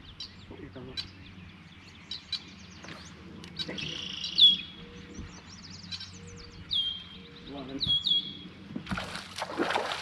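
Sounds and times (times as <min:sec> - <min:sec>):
high bird chirps: 0:03.6 - 0:07.2, 0:07.8 - 0:08.4.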